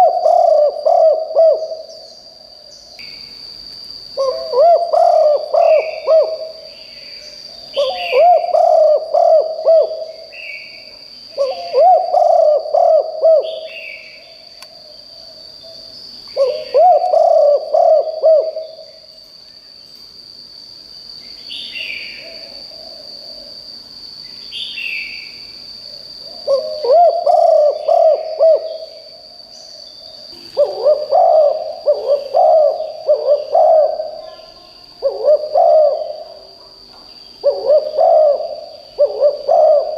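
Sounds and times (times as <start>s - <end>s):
dove cooing: 0.0s - 2.0s, 4.2s - 10.5s, 11.3s - 14.0s, 15.2s - 19.0s, 26.4s - 29.1s, 30.3s - 36.7s, 37.4s - 39.9s.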